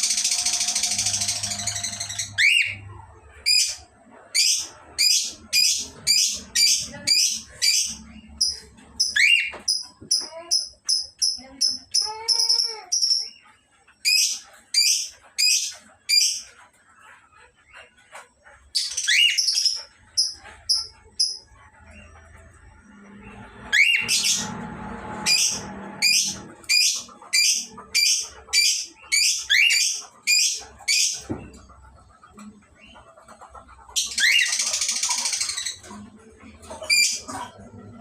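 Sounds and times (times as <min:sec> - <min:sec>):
cockatiels chirping: 0:00.0 - 0:13.4, 0:14.0 - 0:16.6, 0:18.8 - 0:21.4, 0:23.7 - 0:24.6, 0:25.2 - 0:31.8, 0:32.4 - 0:36.0.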